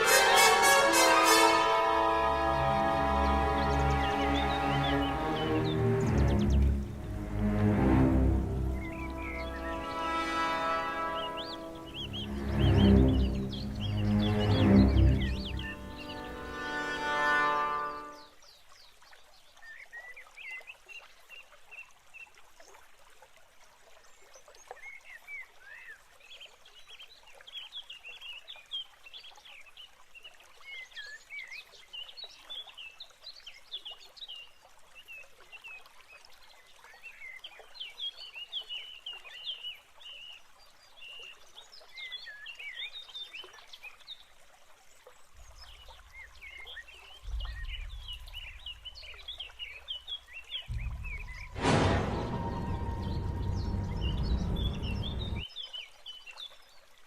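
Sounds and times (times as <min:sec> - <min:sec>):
birds chirping: 0:00.0 - 0:18.3, 0:45.3 - 0:55.5
low rumble: 0:03.1 - 0:10.2, 0:11.8 - 0:16.5, 0:47.3 - 0:49.7, 0:50.7 - 0:55.4.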